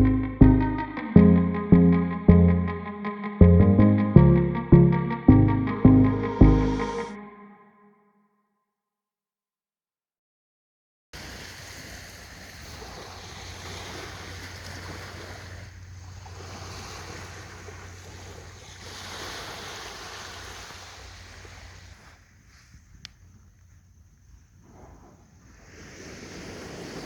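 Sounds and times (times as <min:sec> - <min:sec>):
sea waves washing onto beach: 0:11.2 - 0:22.6, 0:25.5 - 0:27.0
wind rumbling on microphone: 0:11.2 - 0:27.0.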